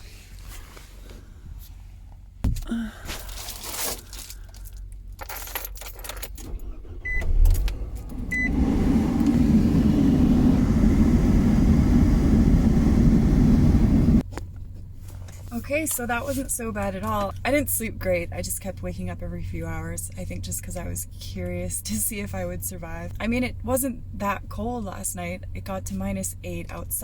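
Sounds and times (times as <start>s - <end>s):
keys jangling: 4.4s - 6.6s
van engine starting and running: 6.3s - 14.3s.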